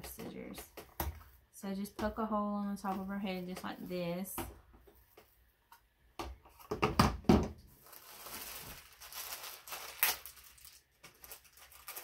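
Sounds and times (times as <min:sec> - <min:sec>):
cardboard rustling: 0:07.8 - 0:12.0.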